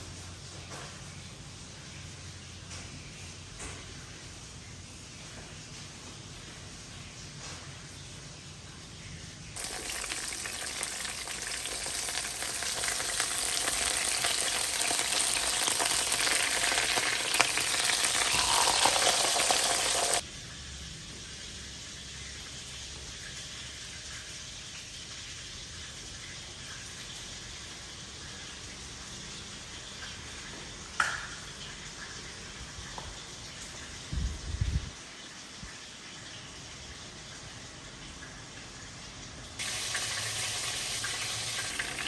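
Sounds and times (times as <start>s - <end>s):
food sizzling in a frying pan: 9.6s - 20.2s, 39.6s - 42.0s.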